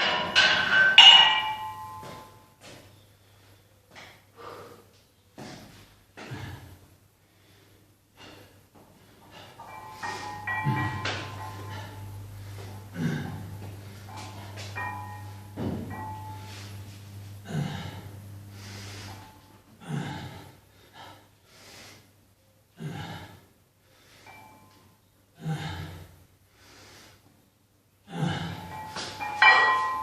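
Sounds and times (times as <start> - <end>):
person breathing hard: 4.3 - 5.0, 11.4 - 14.6, 16.3 - 22.2, 25.4 - 27.3.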